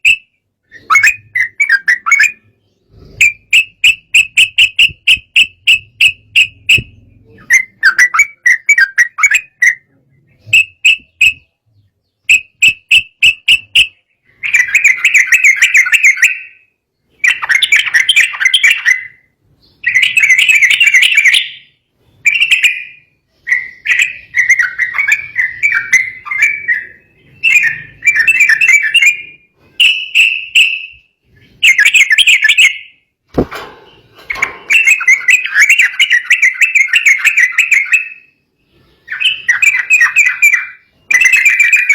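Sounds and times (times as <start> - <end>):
bird chattering chirps: 0.0 - 33.1, 33.9 - 41.9
sharp knock: 33.3 - 34.9.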